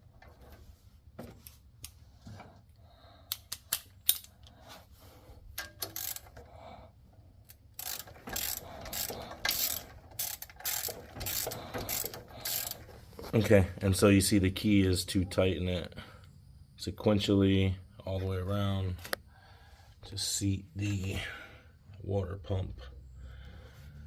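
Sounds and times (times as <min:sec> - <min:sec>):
ratchet wrench clicking: 0:05.6 - 0:06.4, 0:07.4 - 0:12.9.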